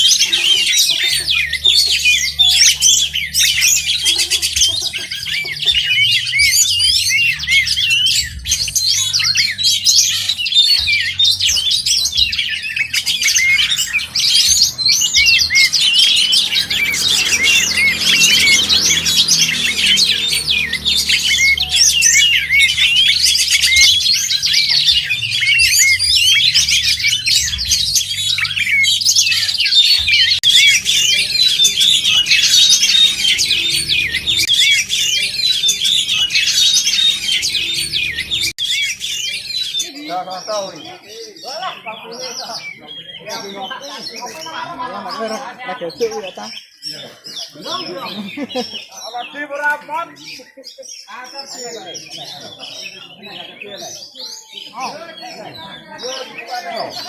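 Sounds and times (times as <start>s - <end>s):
bird singing rapid whistles: 0.0s - 41.1s.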